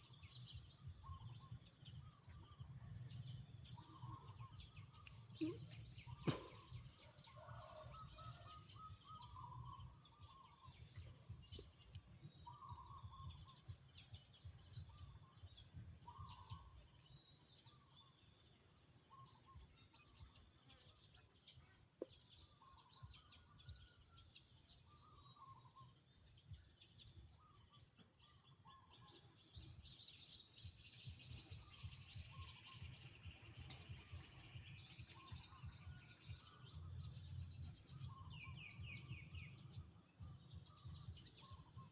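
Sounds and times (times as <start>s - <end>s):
small birds chirping: 0.0s - 24.2s, 24.8s - 41.9s
lower bird call: 3.8s - 10.6s.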